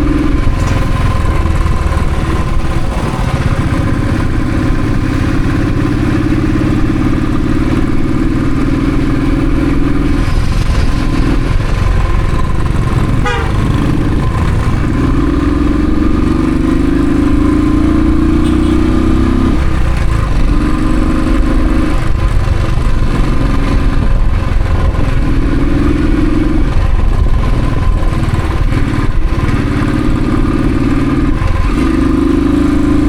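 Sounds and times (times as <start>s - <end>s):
motorcycle engine revving while riding: 0.0s - 33.0s.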